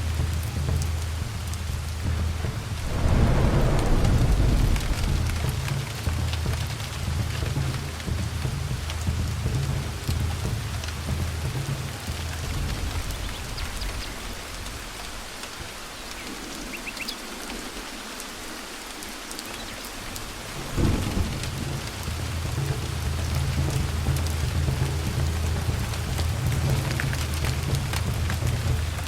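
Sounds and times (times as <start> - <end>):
steady rain: 0.0 - 29.0
rolling thunder: 2.2 - 10.2, 20.5 - 29.0
sudden thunderclap: 2.7 - 8.2.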